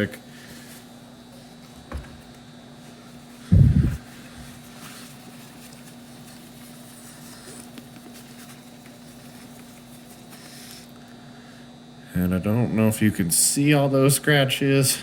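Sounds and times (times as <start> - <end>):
steady low hum: 0.0 - 15.0
paper towel rubbing plastic: 2.8 - 10.9.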